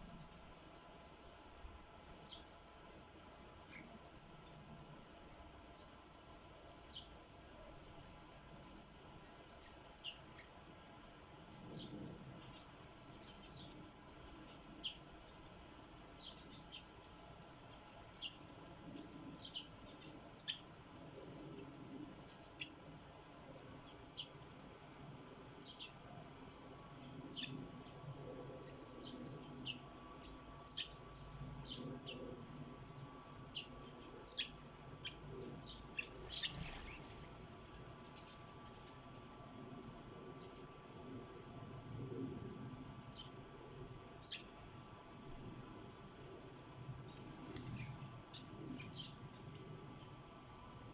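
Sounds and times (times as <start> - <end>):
sparrows chirping: 0.0 - 0.5, 1.2 - 7.5, 8.6 - 10.6, 11.6 - 15.5, 16.1 - 22.8, 23.8 - 24.4, 25.6 - 39.3, 47.0 - 49.8.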